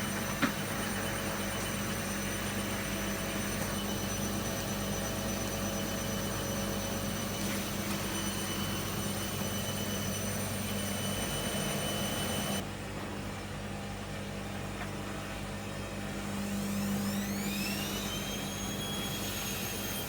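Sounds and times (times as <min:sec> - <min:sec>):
high whining tones: 0:00.0 - 0:12.6
washing machine humming: 0:00.0 - 0:20.0.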